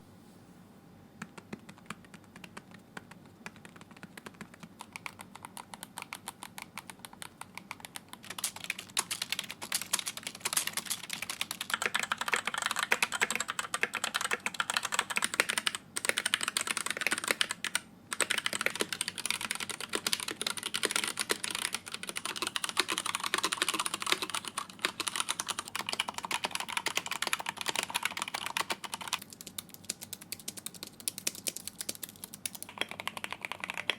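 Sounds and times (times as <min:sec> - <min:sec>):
fast typing on computer keyboards: 0:01.2 - 0:33.9.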